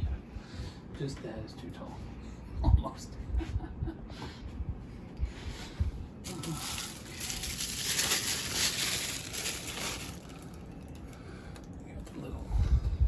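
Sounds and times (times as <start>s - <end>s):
packing material rustling: 6.2s - 11.2s.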